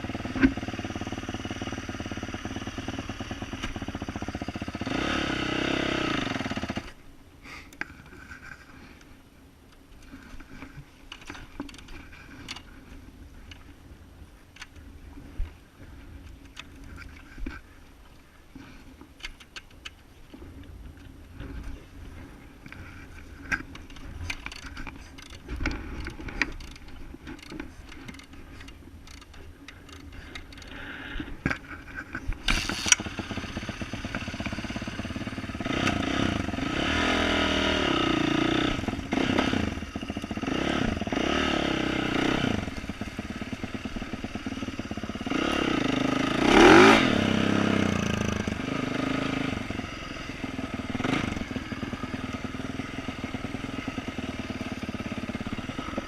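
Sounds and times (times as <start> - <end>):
motorcycle engine revving: 0.0 - 7.0, 32.4 - 56.0
clicks and ticks: 23.5 - 30.8.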